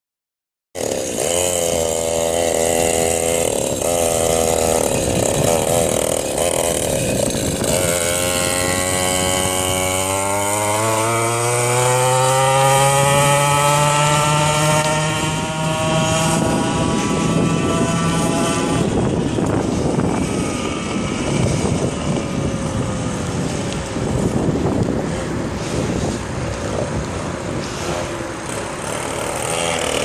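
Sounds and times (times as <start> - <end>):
mini bike engine running: 0.8 - 30.0.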